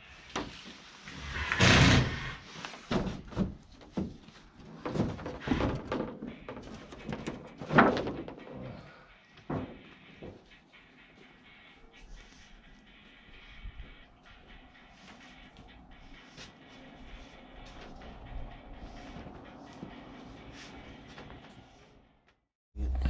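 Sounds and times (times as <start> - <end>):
knocks and thumps: 2.9 - 8.5.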